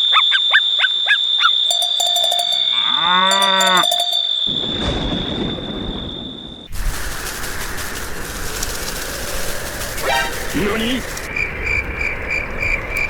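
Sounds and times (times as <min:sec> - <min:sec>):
quick chirps: 0:01.4 - 0:02.7, 0:03.3 - 0:04.3, 0:09.6 - 0:11.3
cowbells clinking: 0:01.7 - 0:04.3
cow mooing: 0:02.8 - 0:03.8.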